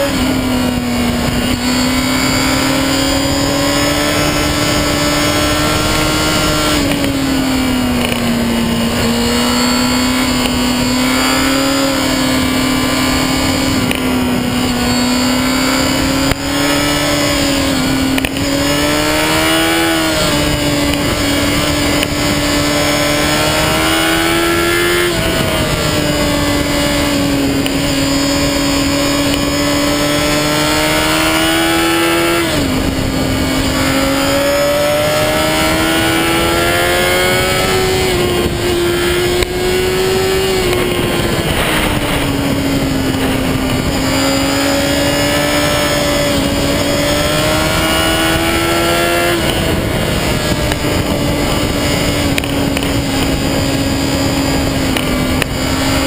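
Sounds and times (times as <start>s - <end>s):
motorcycle engine revving: 0.0s - 56.0s
wind noise: 0.0s - 56.0s.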